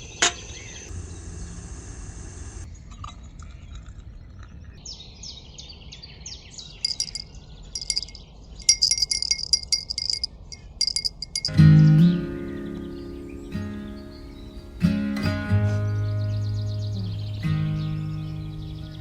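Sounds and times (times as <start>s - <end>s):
small metal bell jingling: 6.9s - 11.6s
strummed acoustic guitar music: 11.5s - 19.0s.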